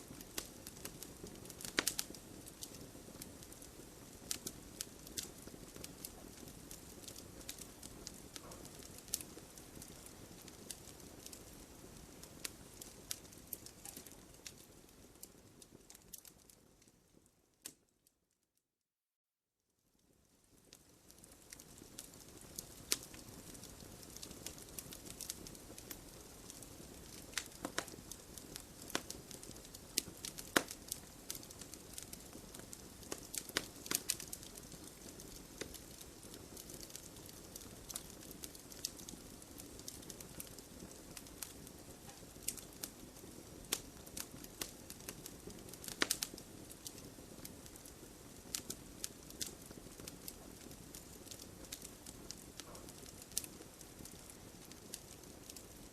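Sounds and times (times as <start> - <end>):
hiss of flame: 0.0 - 14.6
burning logs crackling and popping: 0.0 - 17.9, 20.0 - 55.9.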